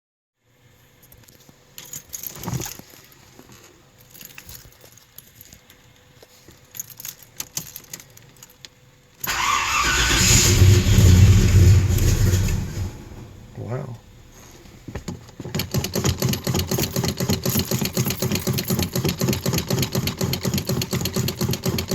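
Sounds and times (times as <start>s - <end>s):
car engine starting: 9.2s - 14.8s.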